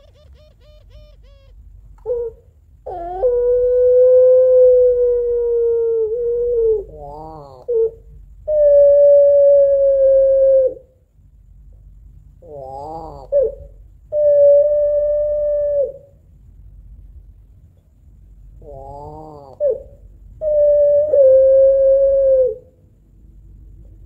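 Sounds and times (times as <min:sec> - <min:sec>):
dove wavering coo: 0:00.0 - 0:11.0, 0:12.4 - 0:16.2, 0:18.6 - 0:22.8
dove long crying calls: 0:00.0 - 0:11.1, 0:12.4 - 0:16.3, 0:18.6 - 0:23.0.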